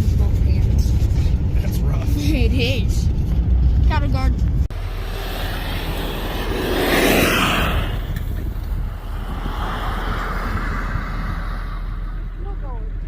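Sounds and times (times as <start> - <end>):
rushing noise: 4.7 - 12.4
truck engine droning: 4.7 - 13.0.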